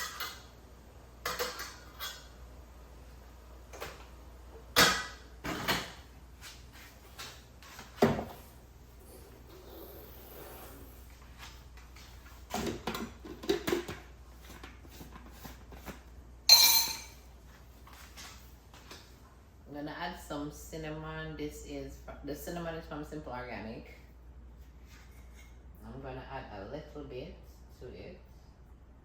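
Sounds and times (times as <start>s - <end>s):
dishes and utensils clattering: 1.3s - 2.4s, 16.5s - 17.2s.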